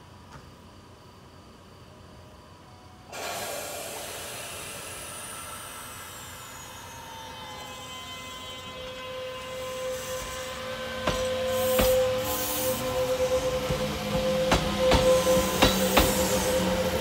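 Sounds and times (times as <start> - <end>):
train hiss and hum: 1.4 - 17.0.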